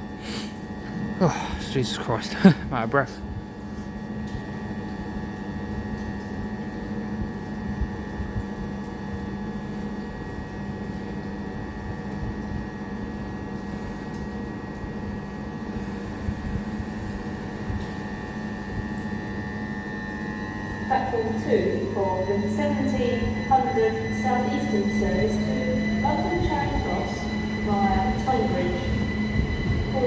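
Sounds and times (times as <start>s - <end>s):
electric train hum and whine: 0.0s - 30.0s
low rumble: 20.5s - 30.0s.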